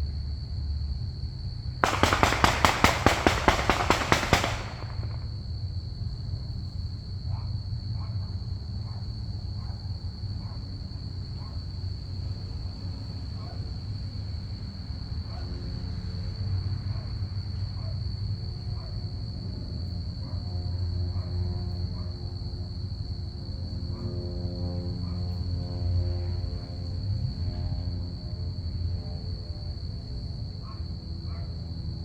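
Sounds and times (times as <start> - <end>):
crickets trilling: 0.1 - 32.0
rapid sharp cracks: 1.8 - 5.3.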